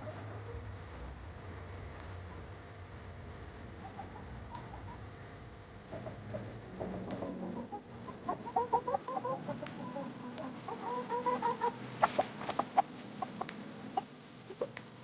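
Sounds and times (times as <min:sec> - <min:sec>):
chickens clucking: 0:03.8 - 0:05.1, 0:05.9 - 0:15.0.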